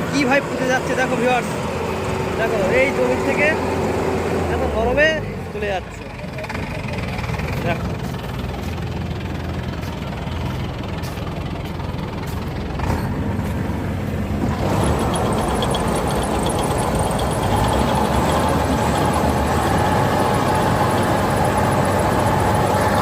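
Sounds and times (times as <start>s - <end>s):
combine harvester engine running: 0.0s - 23.0s
fast high machinery ticking: 14.5s - 23.0s.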